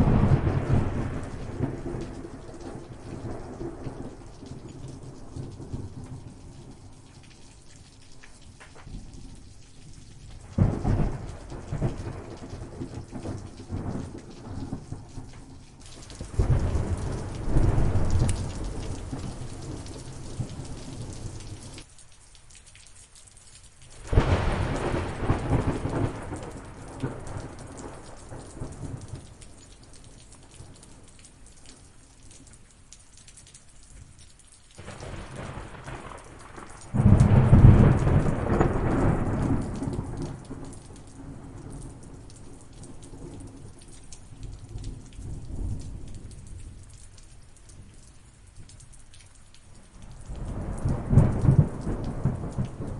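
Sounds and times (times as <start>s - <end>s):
thunder cracks and rumble: 0.0s - 6.6s, 10.4s - 21.5s, 24.0s - 29.3s, 34.8s - 43.8s, 50.2s - 52.9s
steady rain: 0.0s - 52.9s.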